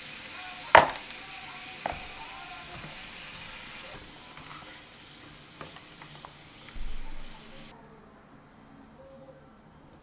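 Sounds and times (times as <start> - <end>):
noodles sizzling in a pot: 0.0 - 7.7.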